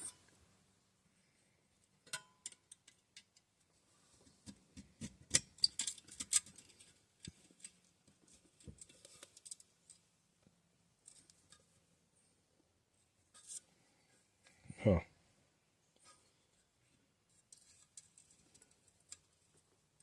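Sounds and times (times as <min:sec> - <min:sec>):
metallic clicks of tools and parts: 0:02.0 - 0:03.5, 0:05.0 - 0:07.8.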